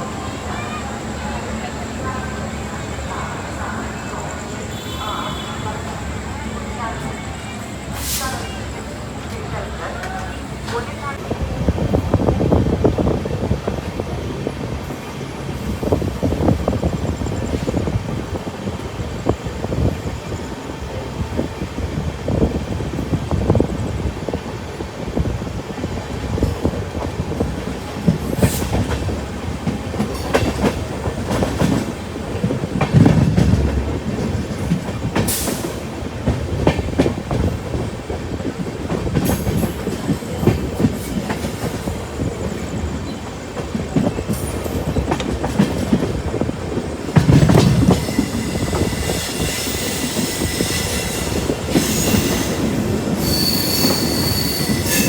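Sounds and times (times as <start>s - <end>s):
train wheels clattering: 25.6s - 55.0s
whining wheel squeal: 48.0s - 55.0s.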